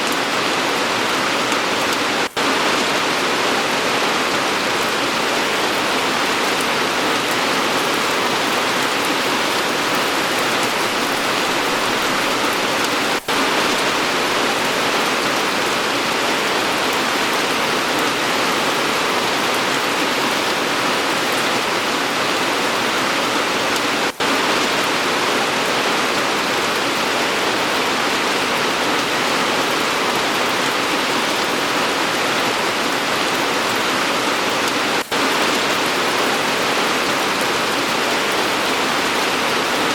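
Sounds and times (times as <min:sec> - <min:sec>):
dense rain pattering: 0:00.0 - 0:39.9.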